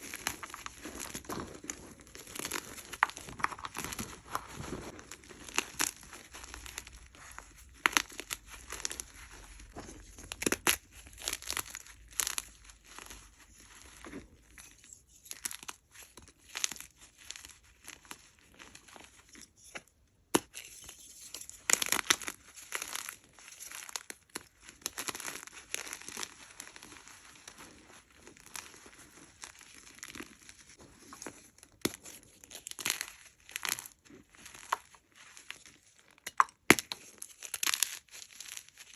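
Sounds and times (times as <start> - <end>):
chalk crunching and crackling: 0.0 - 36.2.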